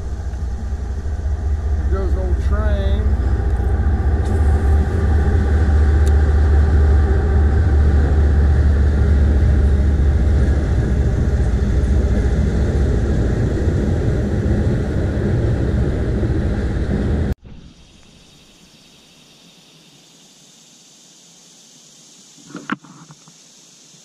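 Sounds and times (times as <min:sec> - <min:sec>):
train passing with low rumble: 0:00.0 - 0:17.4
faint engine drone: 0:00.0 - 0:18.4.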